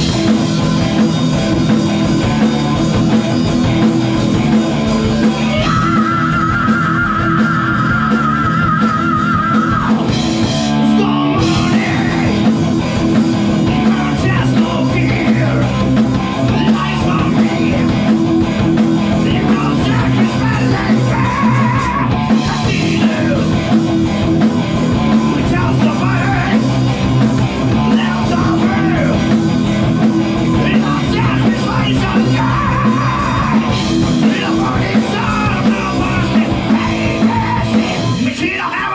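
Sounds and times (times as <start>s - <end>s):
loud rock music: 0.0s - 38.9s
shouted vocals: 5.4s - 10.1s, 10.7s - 12.5s, 19.2s - 23.6s, 30.6s - 38.9s.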